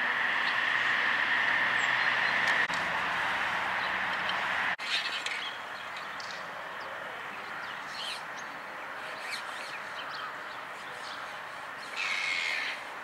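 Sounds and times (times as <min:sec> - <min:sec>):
outdoor background noise: 0:00.0 - 0:13.0
birds chirping: 0:00.4 - 0:02.7, 0:03.7 - 0:13.0.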